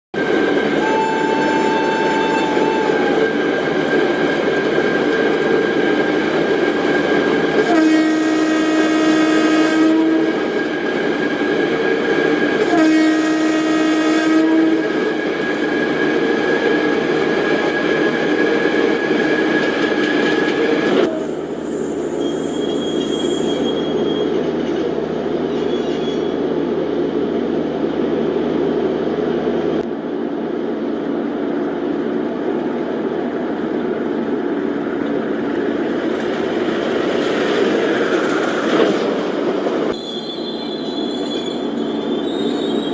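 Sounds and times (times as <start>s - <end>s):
train rail noise: 0.2s - 42.9s
locomotive horn blasts: 0.8s - 3.3s, 7.6s - 10.4s, 12.6s - 15.0s.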